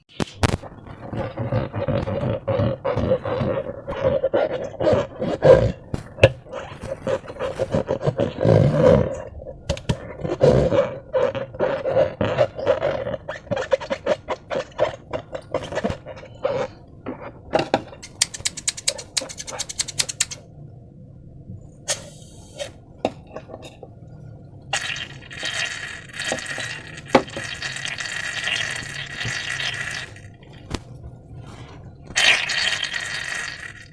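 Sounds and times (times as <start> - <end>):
slime squelching: 0.2 - 17.4, 24.7 - 33.9.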